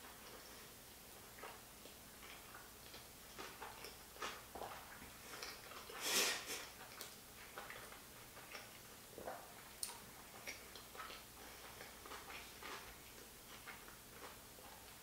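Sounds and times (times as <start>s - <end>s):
chewing sushi: 0.0s - 15.0s
wet mouth clicks and smacks: 6.7s - 14.4s.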